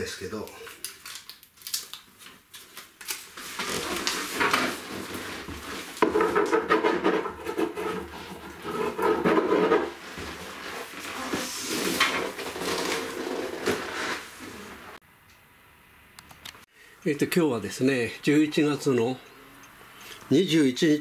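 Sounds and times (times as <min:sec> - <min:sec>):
aluminium foil crinkling: 0:00.4 - 0:06.0.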